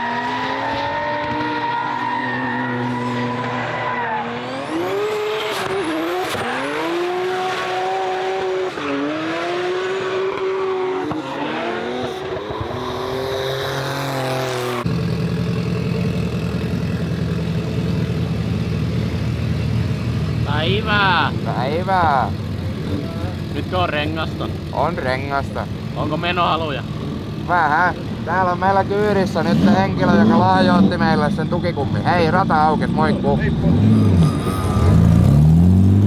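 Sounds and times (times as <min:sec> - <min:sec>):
tyre squeal: 0:00.0 - 0:06.4, 0:29.5 - 0:35.6
car engine revving: 0:00.0 - 0:36.0.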